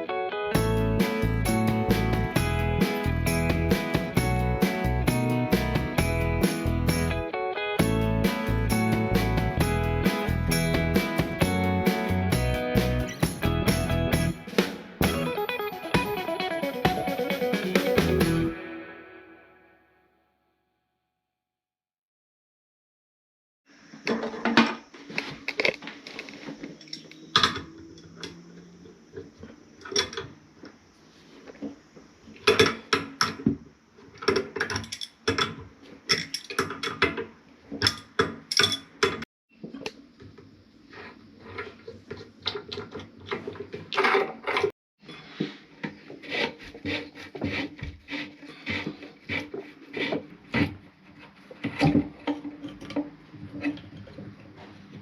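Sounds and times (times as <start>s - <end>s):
tools knocking and scraping: 32.4s - 39.9s, 40.9s - 54.9s.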